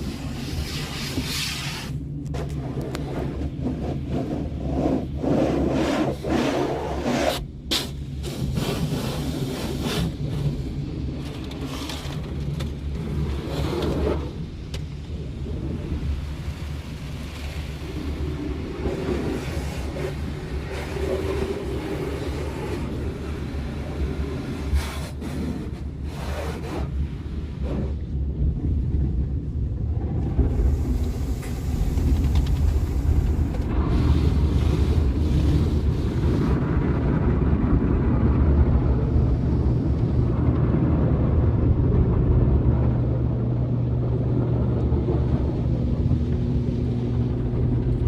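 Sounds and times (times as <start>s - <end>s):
car wash water spray: 0.0s - 28.1s, 30.3s - 37.0s
car wash machinery rumble: 0.0s - 48.0s.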